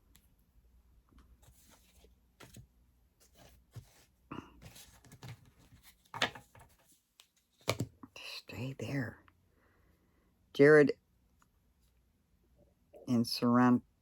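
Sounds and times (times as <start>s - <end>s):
trading cards rustling and clicking: 4.6s - 7.9s.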